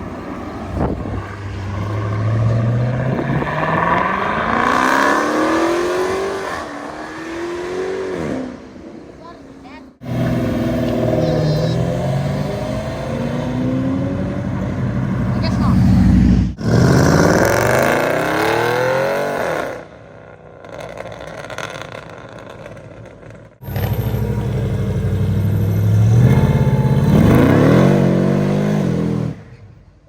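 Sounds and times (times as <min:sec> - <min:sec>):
car engine accelerating hard: 0:00.0 - 0:08.6, 0:10.0 - 0:19.9, 0:23.6 - 0:29.5.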